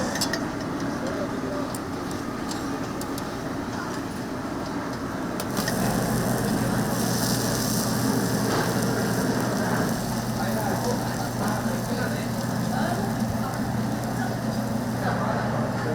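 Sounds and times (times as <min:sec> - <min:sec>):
cooking flame rushing: 0:05.5 - 0:15.9.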